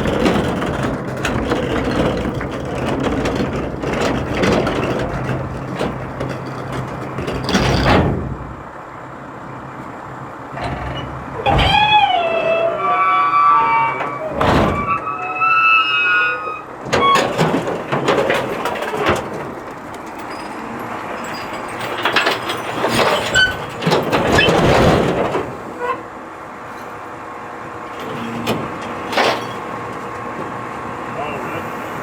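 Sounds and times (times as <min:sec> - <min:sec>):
clattering and banging: 0:00.0 - 0:08.8, 0:13.6 - 0:15.1, 0:16.8 - 0:26.0, 0:27.9 - 0:30.9
truck engine running: 0:00.0 - 0:15.1, 0:16.7 - 0:32.0
metal squealing: 0:10.5 - 0:19.5, 0:20.1 - 0:26.1, 0:28.0 - 0:29.9.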